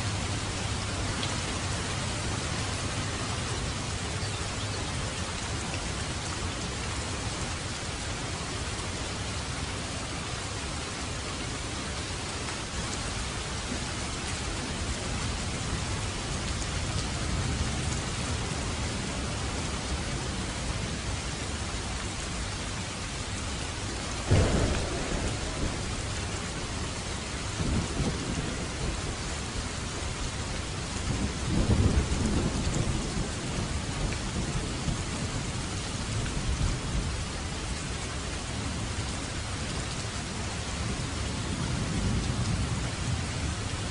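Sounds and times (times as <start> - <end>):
heavy rain falling: 0.0 - 43.9
rolling thunder rumbles: 24.2 - 37.4
thunder clap: 24.3 - 29.5.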